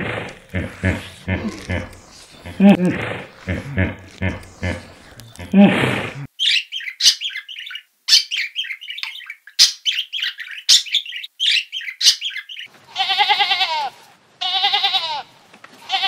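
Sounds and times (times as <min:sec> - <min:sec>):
budgerigars chirping: 0:06.4 - 0:12.7
lamb bleating: 0:12.9 - 0:16.0.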